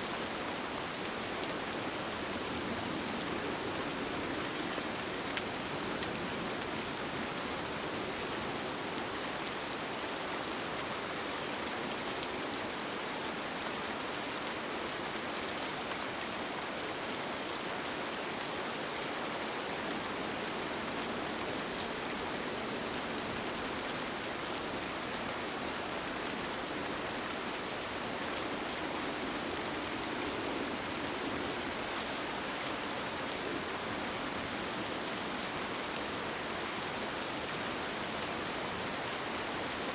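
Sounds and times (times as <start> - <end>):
rain falling on a tent: 0.0 - 39.9.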